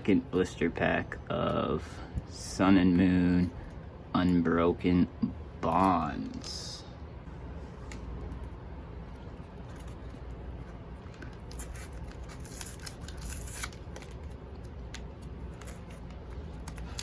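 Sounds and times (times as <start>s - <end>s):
scissors cutting plastic packaging: 11.3s - 17.0s.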